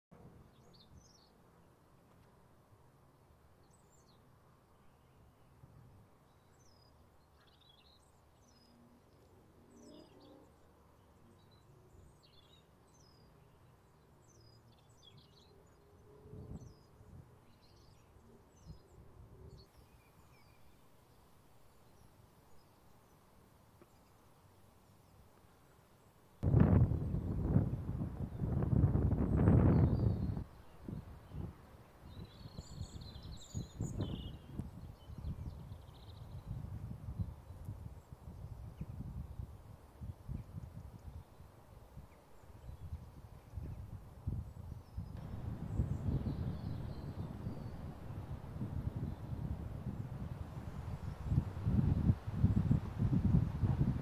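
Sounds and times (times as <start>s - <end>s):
faint birds chirping: 0.2s - 54.0s
background hiss: 16.8s - 29.8s
wind on microphone: 26.4s - 54.0s.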